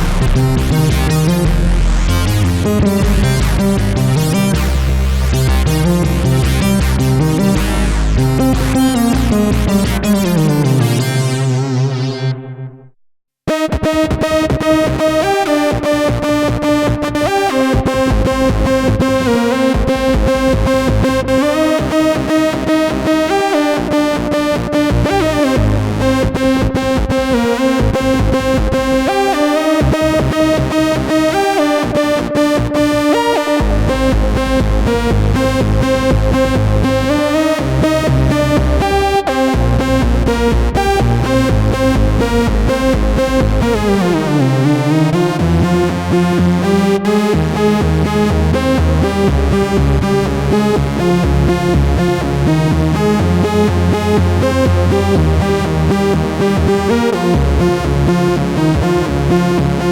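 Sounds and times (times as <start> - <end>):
fast even beat: 0.0 - 4.6
synth lead melody: 0.0 - 12.9, 13.5 - 59.9
synth sound sliding down in pitch: 0.0 - 12.9.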